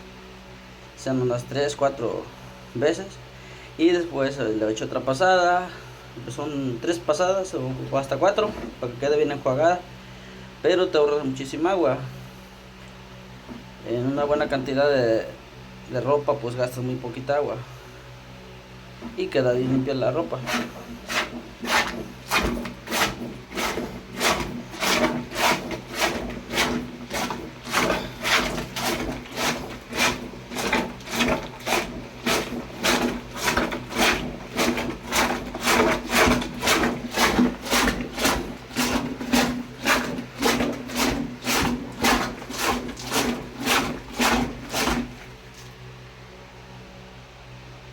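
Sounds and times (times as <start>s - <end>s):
water swishing rhythmically: 20.3s - 45.6s.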